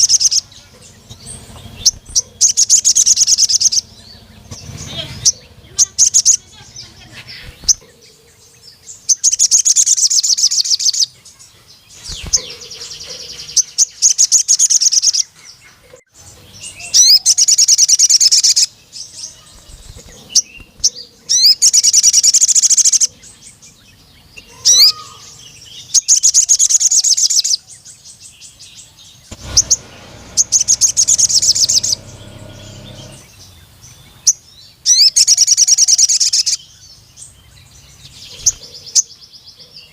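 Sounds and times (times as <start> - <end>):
bird chattering trills: 0.0 - 23.7, 29.1 - 36.6.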